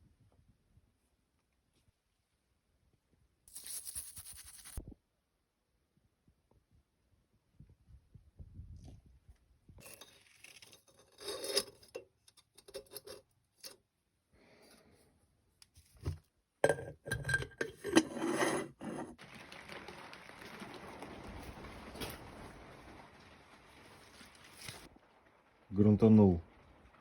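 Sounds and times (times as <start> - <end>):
hard objects knocking and clinking: 16.6 - 19.2.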